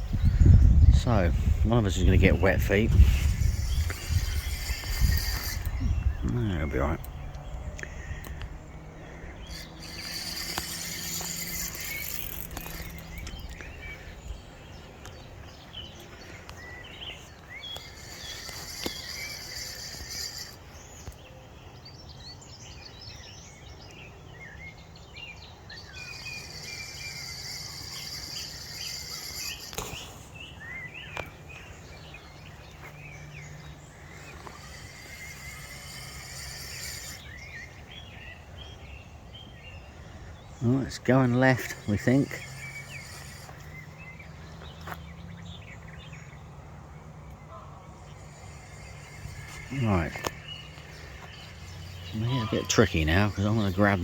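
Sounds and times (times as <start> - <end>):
birdsong chirps: 0.0 - 54.0
high hiss: 34.2 - 37.6, 48.0 - 54.0.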